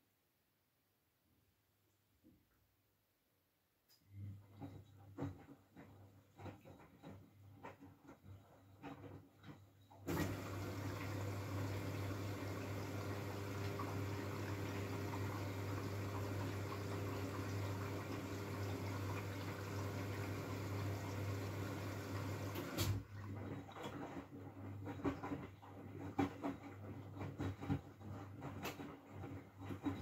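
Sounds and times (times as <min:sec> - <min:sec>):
washing machine water inlet rushing: 0:10.0 - 0:30.0.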